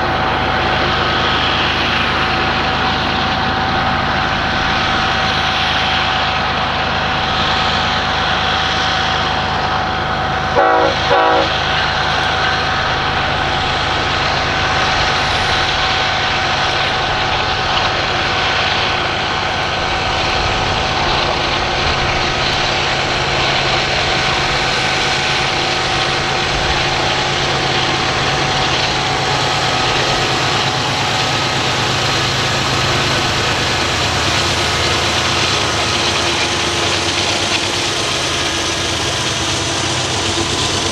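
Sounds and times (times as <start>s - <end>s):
train horn blasts: 0.0s - 40.3s
train wheels rumbling: 0.0s - 40.9s
thin squeal tone: 10.6s - 19.7s.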